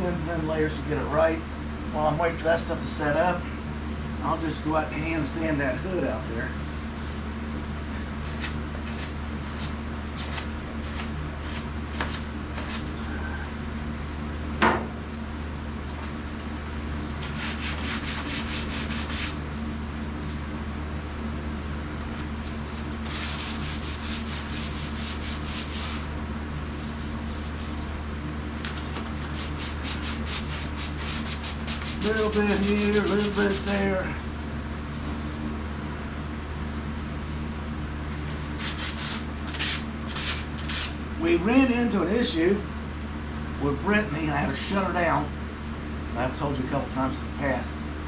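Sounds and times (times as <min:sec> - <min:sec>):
steady low hum: 0:00.0 - 0:48.0
sandpaper sanding strokes: 0:06.6 - 0:07.3, 0:17.2 - 0:19.4, 0:23.0 - 0:26.1, 0:26.7 - 0:28.2, 0:29.3 - 0:37.8, 0:38.6 - 0:41.0.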